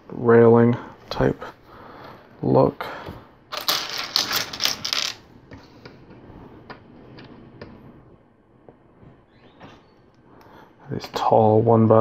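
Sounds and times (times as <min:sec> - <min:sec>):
plastic toy bricks rattling: 0:03.6 - 0:05.2.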